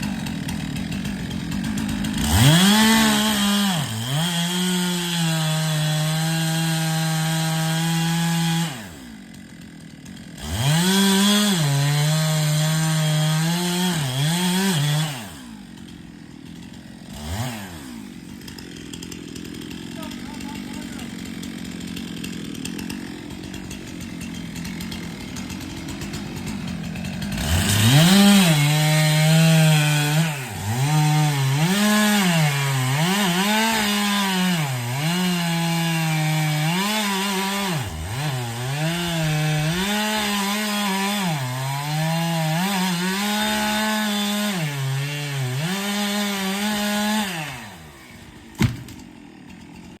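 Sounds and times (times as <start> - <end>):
chainsaw cutting wood: 0.0 - 50.0
single knock: 48.6 - 49.0.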